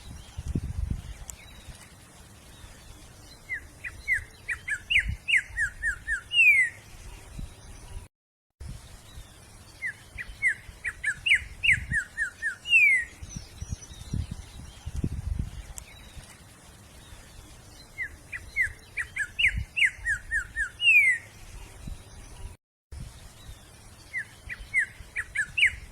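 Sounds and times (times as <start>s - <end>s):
songbird singing: 0.0s - 8.1s, 8.7s - 25.9s.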